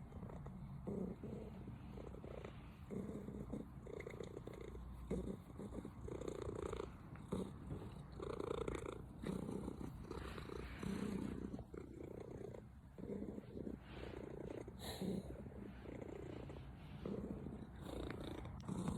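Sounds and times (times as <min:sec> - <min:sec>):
cat purring: 0:00.0 - 0:18.9.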